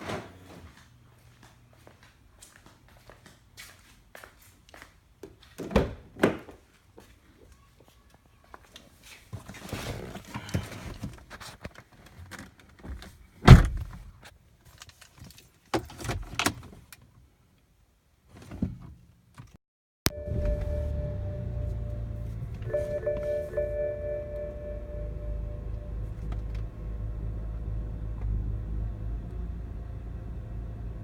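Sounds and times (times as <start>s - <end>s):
knocks and thunks: 13.4s - 14.0s
loud car door thump: 13.5s - 13.9s.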